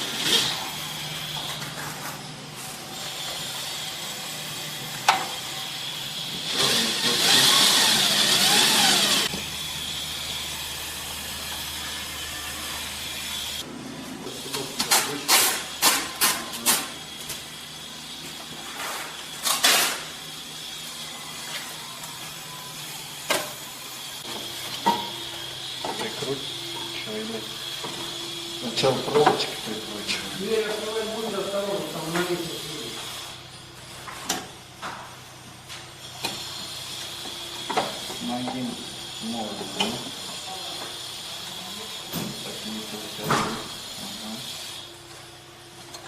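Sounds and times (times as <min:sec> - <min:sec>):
motor-driven tool running: 0:05.4 - 0:13.7.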